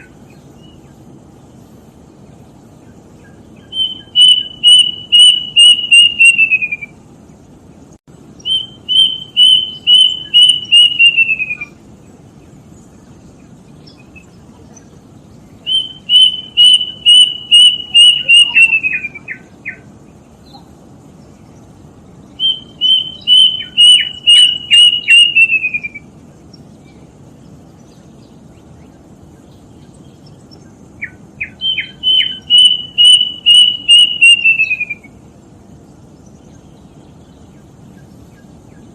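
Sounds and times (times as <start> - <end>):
cuckoo whistled song: 3.2 - 7.0, 8.4 - 11.8, 15.6 - 20.7, 22.4 - 26.2, 30.5 - 35.2.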